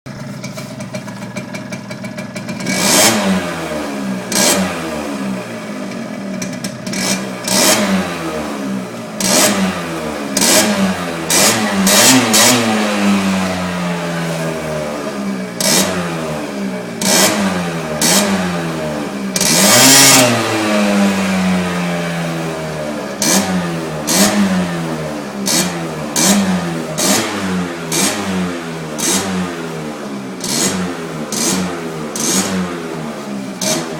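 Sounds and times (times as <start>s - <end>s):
scooter engine revving: 0.1s - 33.9s.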